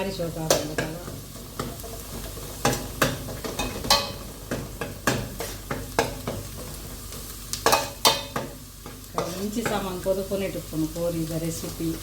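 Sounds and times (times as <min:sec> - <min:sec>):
food sizzling: 0:00.0 - 0:12.0
spoon scraping a pan: 0:00.5 - 0:10.0.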